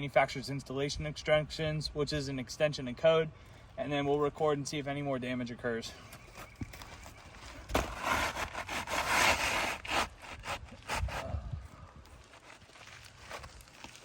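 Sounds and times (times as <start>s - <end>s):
shingle scraping across roof: 6.3s - 11.4s
dull thump: 7.7s - 8.2s.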